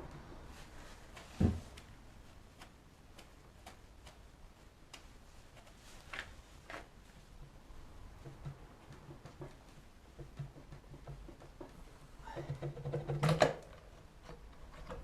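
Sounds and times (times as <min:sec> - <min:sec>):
light clicks and taps: 0:01.1 - 0:13.0
dull thump: 0:01.3 - 0:01.8.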